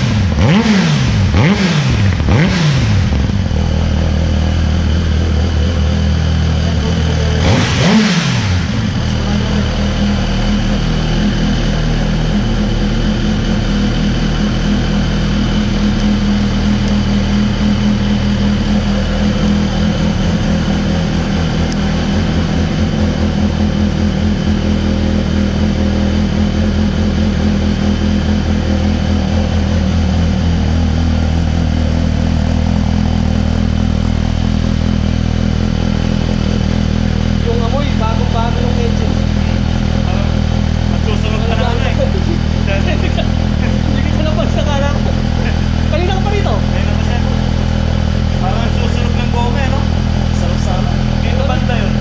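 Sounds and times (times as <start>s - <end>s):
motorcycle engine idling: 0.0s - 52.0s.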